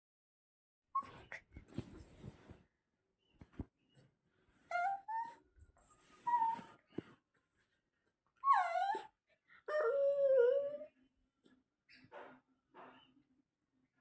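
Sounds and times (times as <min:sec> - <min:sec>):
dog whining: 0:04.7 - 0:05.4, 0:06.2 - 0:06.8, 0:08.4 - 0:10.9.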